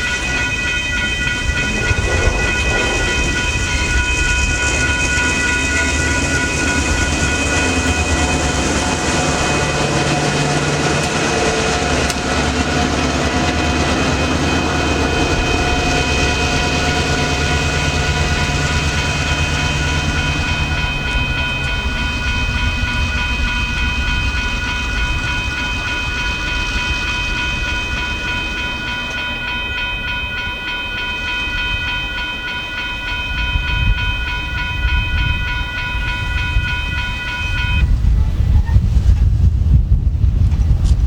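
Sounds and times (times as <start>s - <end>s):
crossing warning bell ringing: 0.0s - 38.0s
freight train rumbling: 0.0s - 41.0s.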